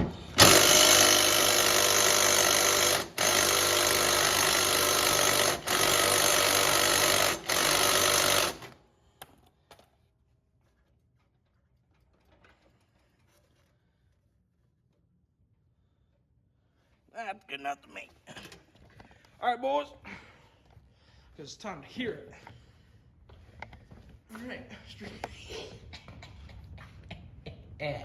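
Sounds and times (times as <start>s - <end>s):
welder running: 0.0s - 8.8s.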